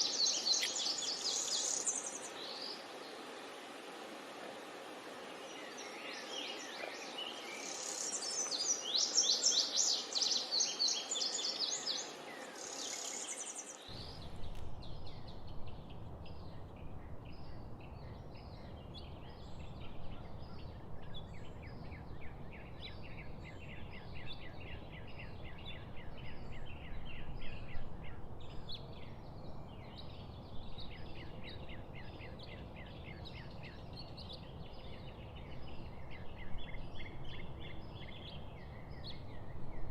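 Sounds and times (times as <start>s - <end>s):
birds singing trilled phrases: 0.0s - 3.3s, 5.3s - 14.1s
birds chirping fast: 0.0s - 16.7s
low steady rumble: 13.9s - 24.6s.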